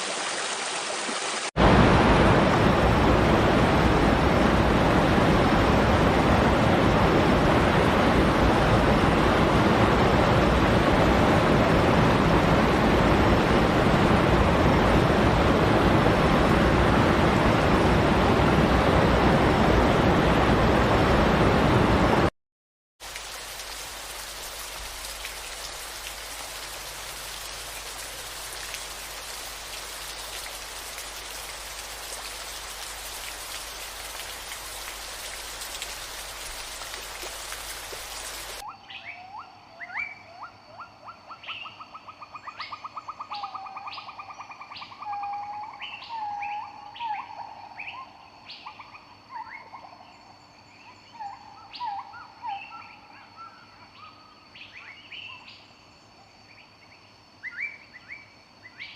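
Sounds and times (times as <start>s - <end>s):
rain hissing: 0.0s - 8.7s, 23.0s - 38.7s
songbirds singing: 25.3s - 55.7s.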